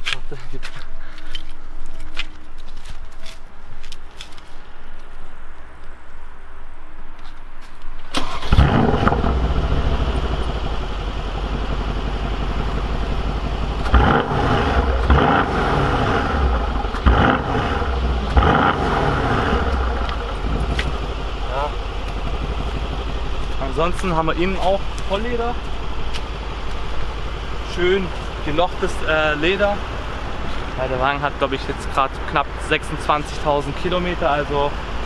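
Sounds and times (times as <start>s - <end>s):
car engine starting and idling: 8.0s - 35.0s
engine revving: 8.2s - 26.3s.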